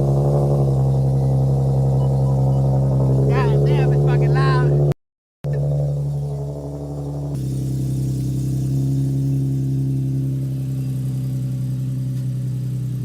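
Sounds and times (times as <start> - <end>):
car engine and exhaust running: 0.0 - 13.0.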